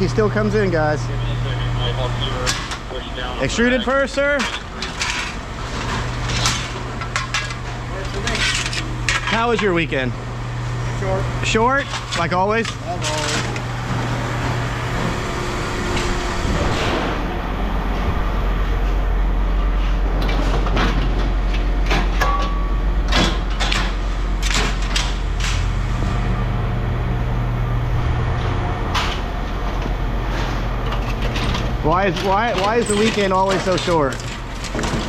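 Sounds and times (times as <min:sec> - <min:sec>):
scrap metal clanking: 0:04.3 - 0:09.8, 0:30.2 - 0:35.0.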